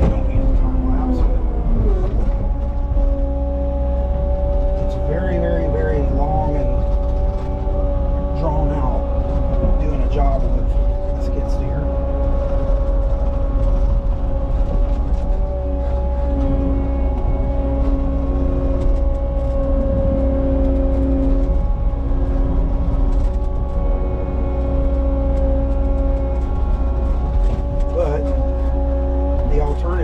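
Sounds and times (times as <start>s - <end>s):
diesel engine rumbling: 0.0s - 30.0s
low hum: 0.0s - 30.0s.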